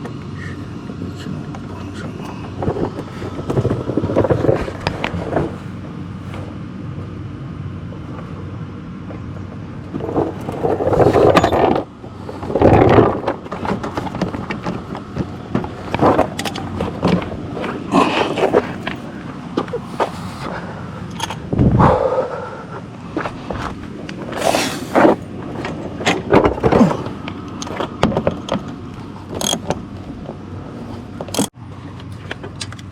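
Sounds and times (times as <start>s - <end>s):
clicks and knocks of parts: 9.9s - 20.1s, 23.2s - 30.4s, 31.0s - 32.9s
tools scraping and clattering: 9.9s - 21.4s, 23.2s - 32.8s.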